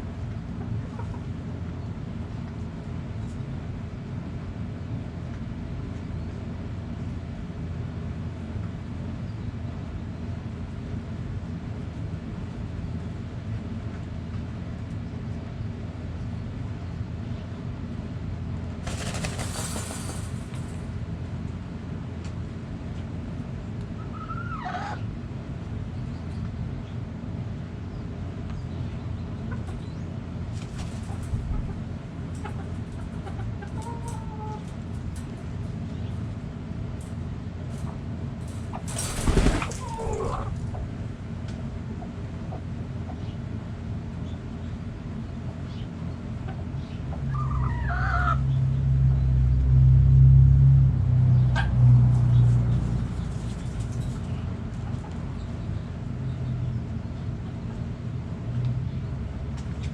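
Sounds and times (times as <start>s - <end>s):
low engine rumble: 0.0s - 59.9s
hens clucking: 0.6s - 1.4s, 18.9s - 20.8s, 30.8s - 34.9s, 38.6s - 41.0s.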